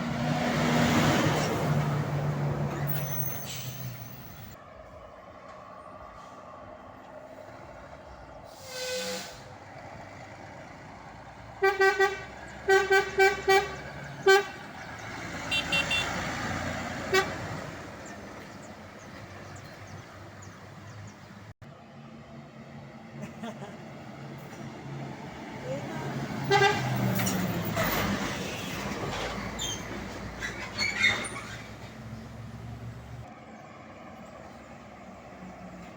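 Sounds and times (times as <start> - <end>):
passing vehicle engine: 0.0 - 3.4, 9.4 - 35.9
truck air horn toots: 8.5 - 9.5, 11.6 - 14.7, 15.4 - 16.4, 17.0 - 17.6, 26.3 - 27.4.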